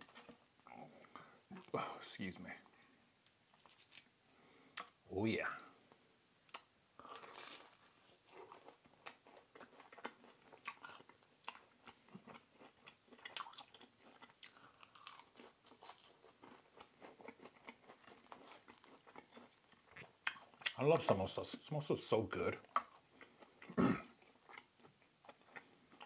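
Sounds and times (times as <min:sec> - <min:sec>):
person chewing crunchy food: 0:06.5 - 0:20.8, 0:22.6 - 0:26.0.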